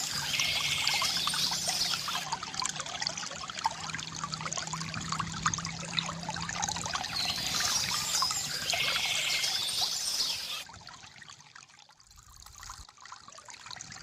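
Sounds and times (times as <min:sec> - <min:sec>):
birds singing and chirping: 0:00.0 - 0:02.2, 0:07.0 - 0:10.6
stream trickling and gurgling: 0:00.0 - 0:14.0.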